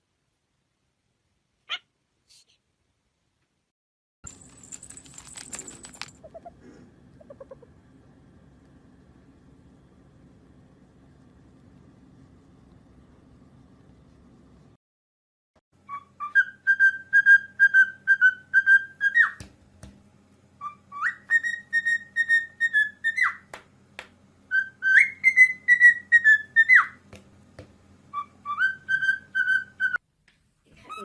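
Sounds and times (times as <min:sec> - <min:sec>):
pet bird whistling: 0:15.8 - 0:19.4, 0:20.6 - 0:23.5, 0:24.5 - 0:27.0, 0:28.1 - 0:30.0.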